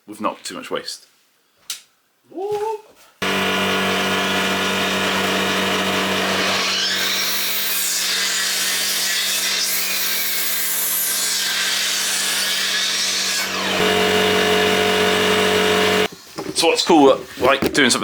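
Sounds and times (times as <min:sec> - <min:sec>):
electric saw cutting wood: 0:03.2 - 0:16.1.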